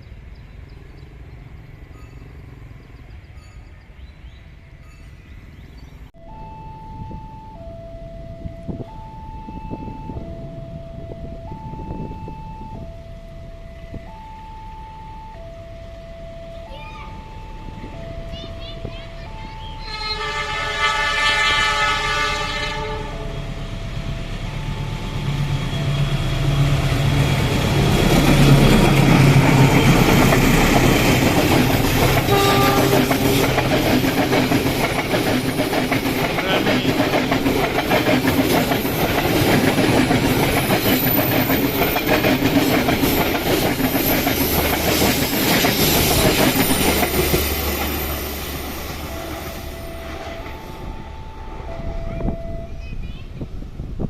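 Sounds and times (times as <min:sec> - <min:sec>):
level crossing alarm two tones: 0:06.2 - 0:20.3, 0:23.1 - 0:27.6
locomotive horn blast: 0:19.7 - 0:23.7, 0:31.0 - 0:34.1
train wheels rumbling and clattering: 0:20.2 - 0:54.0.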